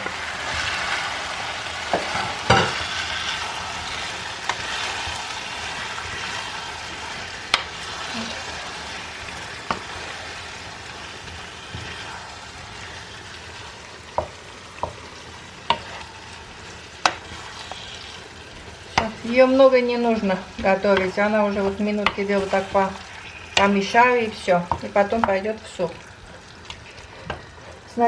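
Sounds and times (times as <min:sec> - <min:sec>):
vegetables sizzling in a frying pan: 0:00.0 - 0:28.0
utensil knocking against pan: 0:20.6 - 0:22.3.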